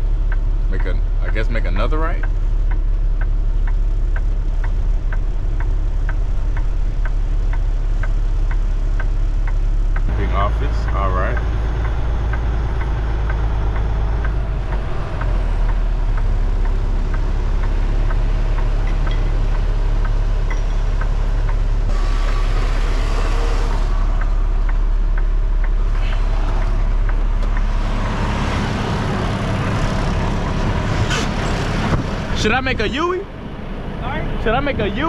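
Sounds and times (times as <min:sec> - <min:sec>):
faint regular ticking: 0:00.0 - 0:21.9, 0:23.9 - 0:30.6
diesel truck engine running: 0:00.0 - 0:35.0.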